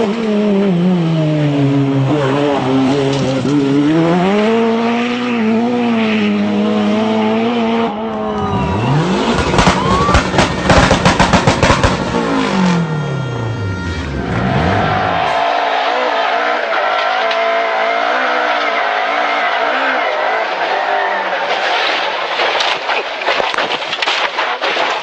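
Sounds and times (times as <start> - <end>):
rally car engine revving: 0.0 - 22.3
engine cracks and bangs: 8.4 - 13.0.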